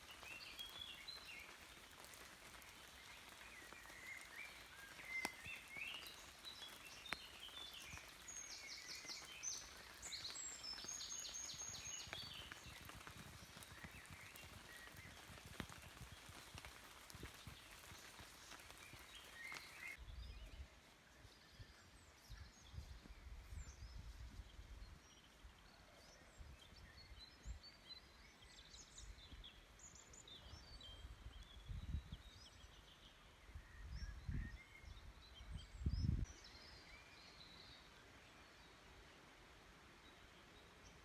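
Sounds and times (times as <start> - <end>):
birds chirping: 0.0 - 24.2.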